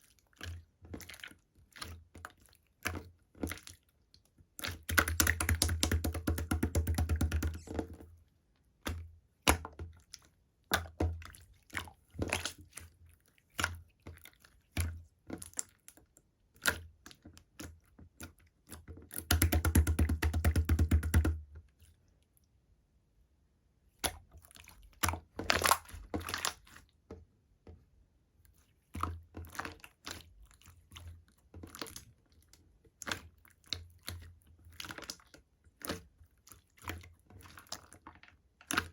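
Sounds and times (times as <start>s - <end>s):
slime squished by hand: 23.9s - 26.9s.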